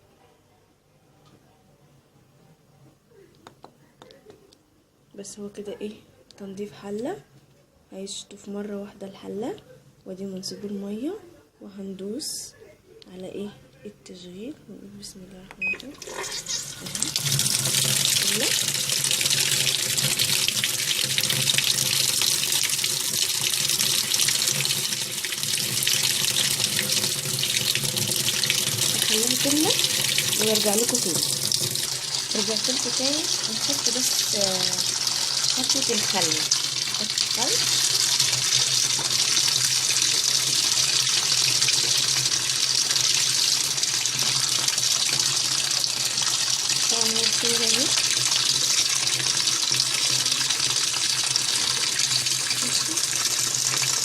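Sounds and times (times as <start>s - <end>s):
water filling washing machine: 15.6s - 54.0s.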